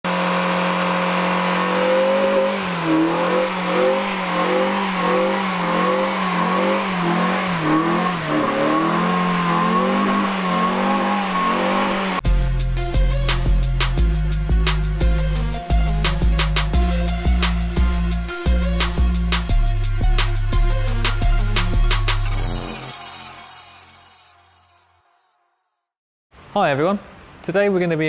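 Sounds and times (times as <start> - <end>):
car engine revving high: 0.1 - 12.2
music with drum beat: 12.2 - 23.0.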